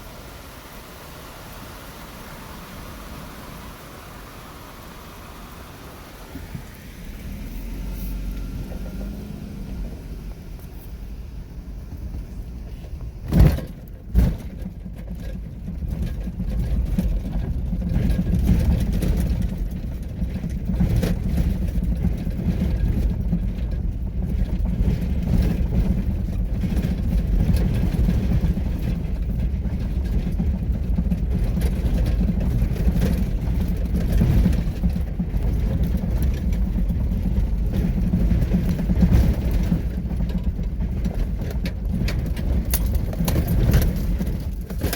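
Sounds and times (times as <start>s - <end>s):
vehicle engine and road noise: 0.0s - 44.9s.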